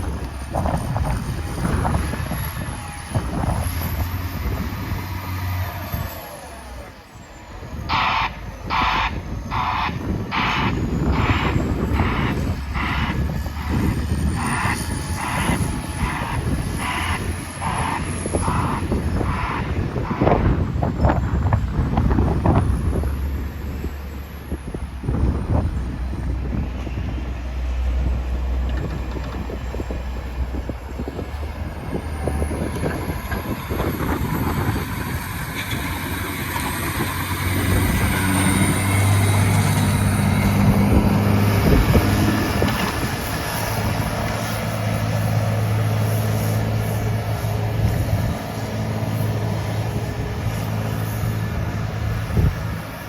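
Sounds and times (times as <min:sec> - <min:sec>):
diesel engine running under load: 0:00.0 - 0:53.0
steady rushing noise: 0:07.9 - 0:23.2.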